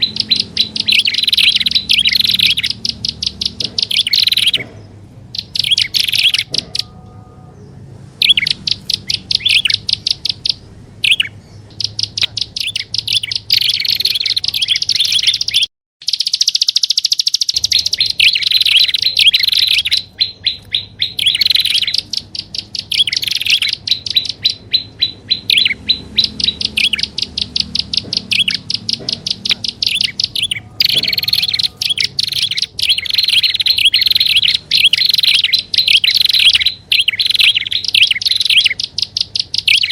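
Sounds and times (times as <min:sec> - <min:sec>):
recorded bird chattering calls: 0:00.0 - 0:39.9.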